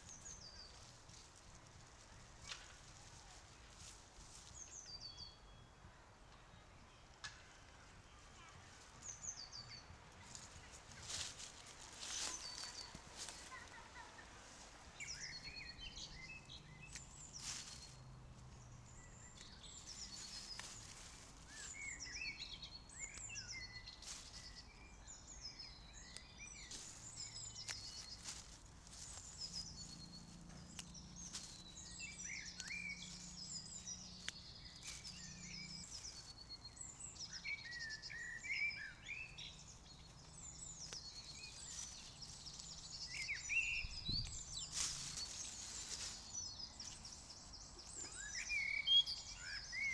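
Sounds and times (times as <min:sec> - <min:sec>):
small birds chirping and trilling: 0:00.0 - 0:49.9.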